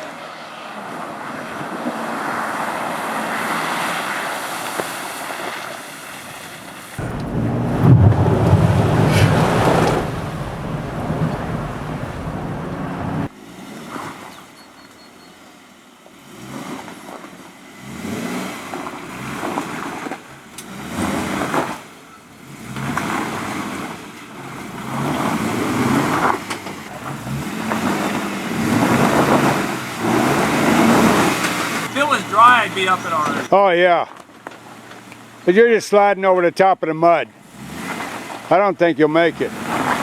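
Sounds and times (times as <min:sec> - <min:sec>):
car engine revving: 0:07.0 - 0:13.3, 0:27.0 - 0:33.5
loud rushing noise: 0:07.0 - 0:13.3, 0:31.8 - 0:33.5.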